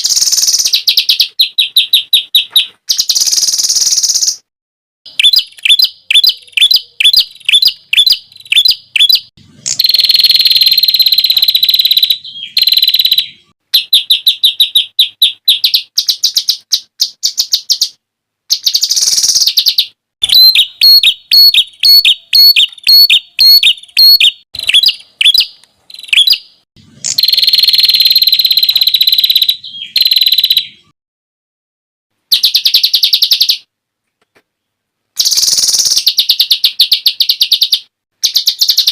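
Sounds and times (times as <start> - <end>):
songbird trilling: 5.1 - 30.9, 35.2 - 38.9.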